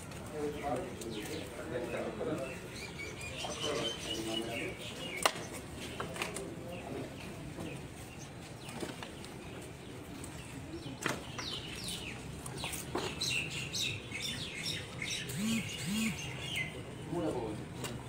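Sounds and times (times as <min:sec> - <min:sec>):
small birds chirping: 0:00.4 - 0:17.5.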